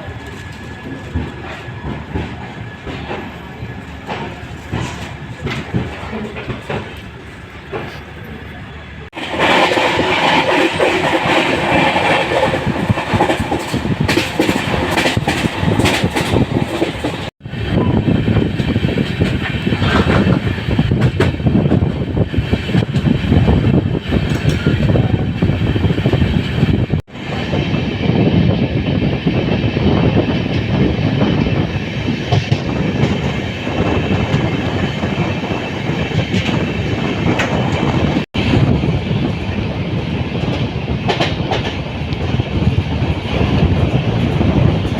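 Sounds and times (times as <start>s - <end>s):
wheels clicking over rail joints: 0.0s - 17.3s
train wheels rumbling on rail: 0.0s - 44.9s.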